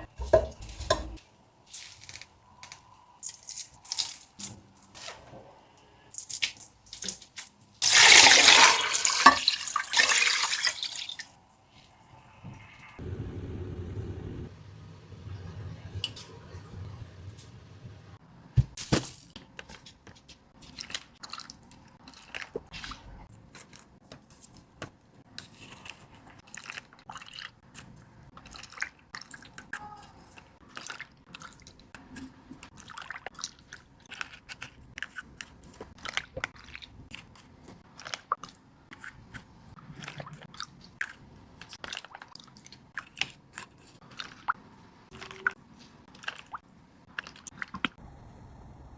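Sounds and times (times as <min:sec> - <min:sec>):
ingredients being cut and handled: 0:00.2 - 0:05.2, 0:18.6 - 0:47.9.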